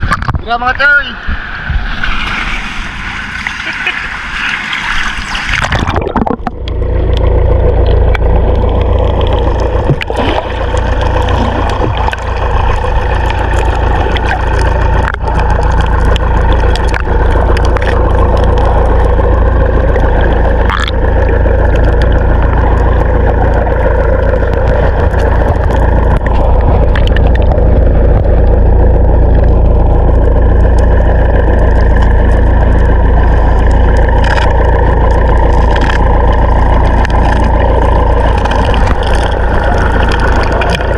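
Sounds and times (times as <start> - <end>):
boat engine rumbling: 0.0 - 40.9.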